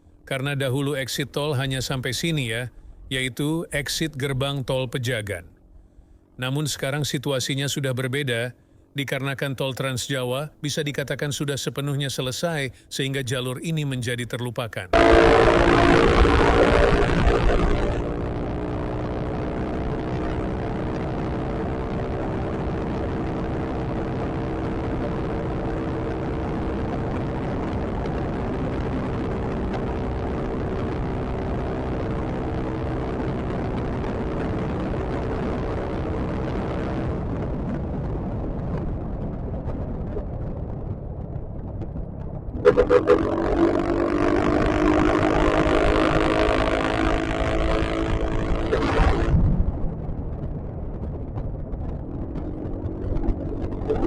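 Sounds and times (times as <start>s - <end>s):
road and wind noise: 15.0s - 54.0s
scooter engine running: 42.7s - 49.3s.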